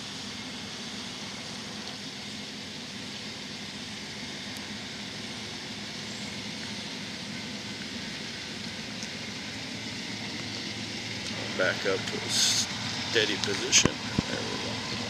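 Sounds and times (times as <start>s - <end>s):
locomotive engines droning: 0.0s - 15.0s
even hiss: 11.6s - 13.8s.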